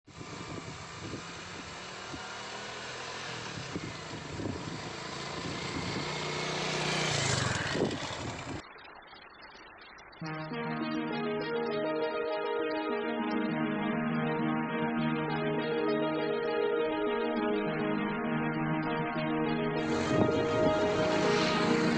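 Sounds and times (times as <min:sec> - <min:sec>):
engine running: 0:00.1 - 0:08.6, 0:19.4 - 0:21.9
wide rushing noise: 0:19.8 - 0:21.9.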